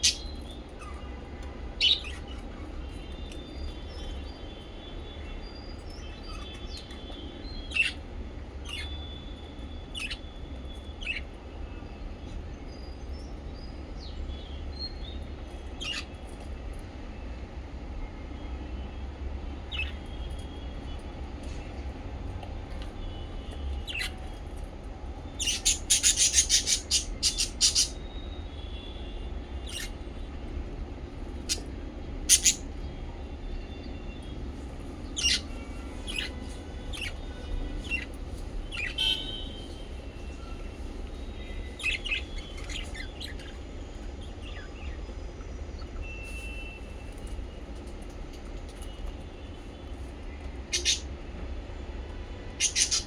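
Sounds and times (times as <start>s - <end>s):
parrots chirping: 0.0s - 1.0s, 1.8s - 4.4s, 5.8s - 11.4s, 15.8s - 16.2s, 25.4s - 28.2s, 29.6s - 30.0s, 31.4s - 32.8s, 34.8s - 43.6s, 50.7s - 51.1s, 52.6s - 53.0s.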